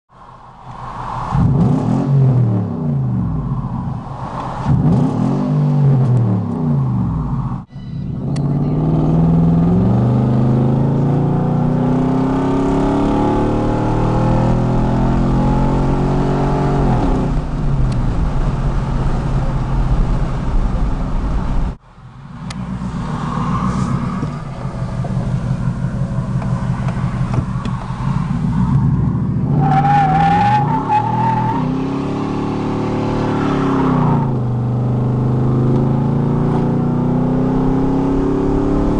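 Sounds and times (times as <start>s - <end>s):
truck engine revving and accelerating: 1.4s - 3.4s, 4.6s - 7.4s, 8.2s - 20.2s, 22.4s - 38.9s.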